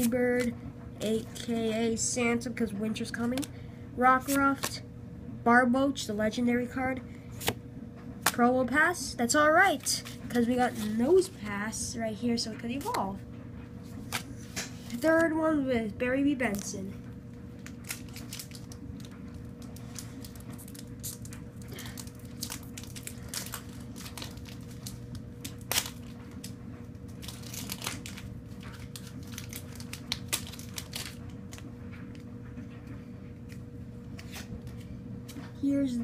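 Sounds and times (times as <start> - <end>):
low steady hum: 0.0 - 36.0
wrapper tearing and crinkling: 17.6 - 31.7.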